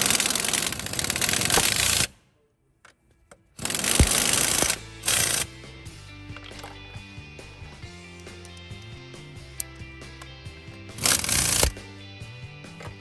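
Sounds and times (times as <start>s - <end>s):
impact wrench hammering on bolts: 3.6s - 5.5s.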